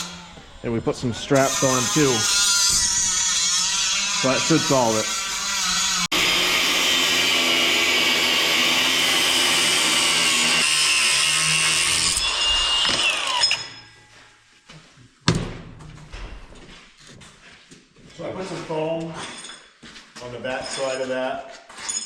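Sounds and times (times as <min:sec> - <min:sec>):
power tool whining: 0:00.0 - 0:14.0
sharp knock: 0:15.3 - 0:16.5.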